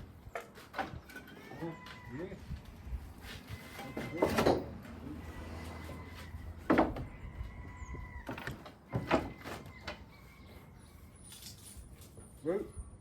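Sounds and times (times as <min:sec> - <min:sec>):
lifting gear knocks and creaks: 0:08.2 - 0:10.1.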